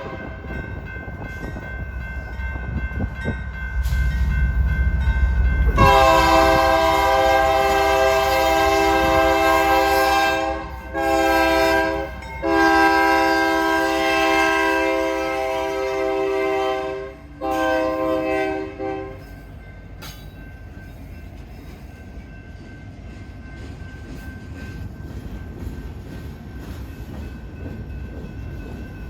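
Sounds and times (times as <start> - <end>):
locomotive air horn blasts: 0.0 - 0.4, 5.7 - 19.3
train rumble: 0.0 - 29.0.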